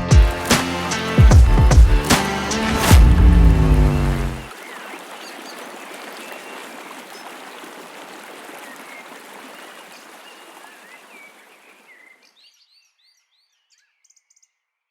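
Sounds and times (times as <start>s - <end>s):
river whitewater rushing: 1.9s - 9.8s.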